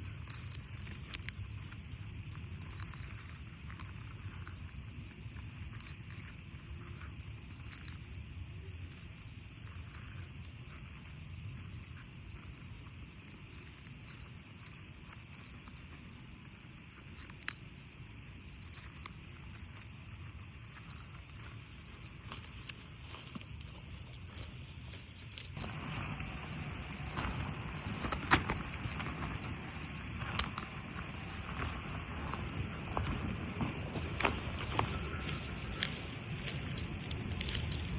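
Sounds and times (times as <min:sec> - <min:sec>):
crickets chirping: 0:00.0 - 0:37.9
low rustle: 0:20.6 - 0:37.9.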